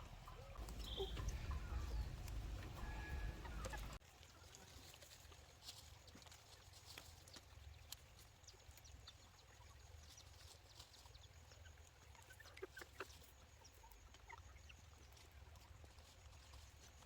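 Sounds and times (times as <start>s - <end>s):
low steady hum: 0.0s - 4.0s
short high chirps: 0.6s - 2.1s.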